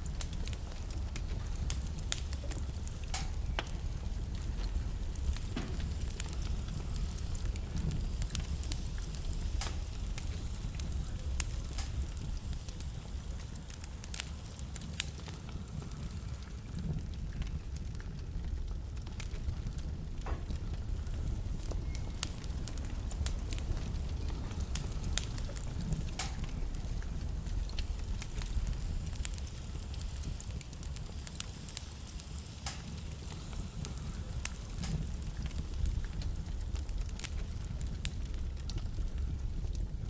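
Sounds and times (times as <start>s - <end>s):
burning logs crackling: 0.0s - 40.0s
fire rumbling and hissing: 0.0s - 40.0s.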